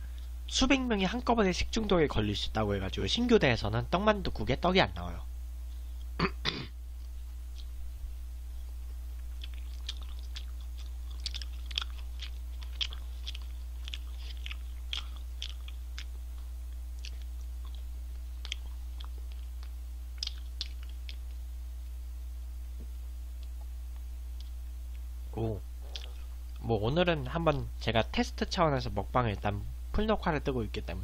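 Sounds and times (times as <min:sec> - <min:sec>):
person chewing crunchy food: 0:07.0 - 0:07.8, 0:08.8 - 0:21.4, 0:25.8 - 0:26.6.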